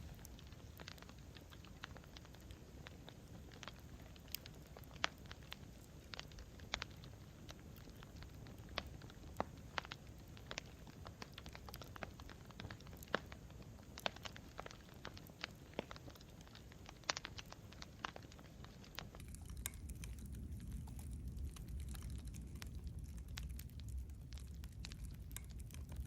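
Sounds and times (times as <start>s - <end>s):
campfire crackling and popping: 0.0s - 26.0s
low steady rumble: 18.4s - 26.0s.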